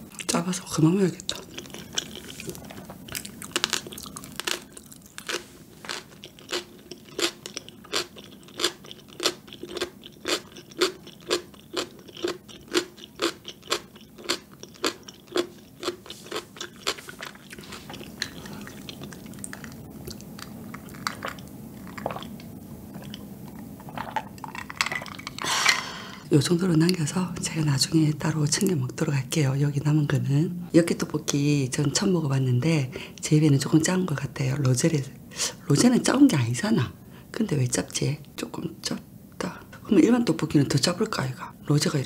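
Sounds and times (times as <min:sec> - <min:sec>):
crunchy pickled radish being chewed: 0:01.1 - 0:25.5.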